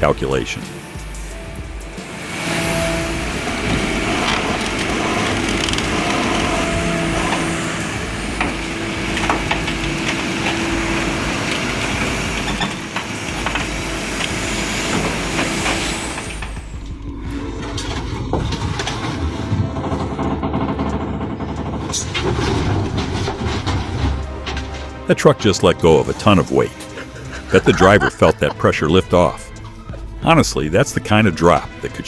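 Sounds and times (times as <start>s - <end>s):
excavator diesel engine whine: 0.0s - 30.9s
knocks and creaks: 2.6s - 25.5s.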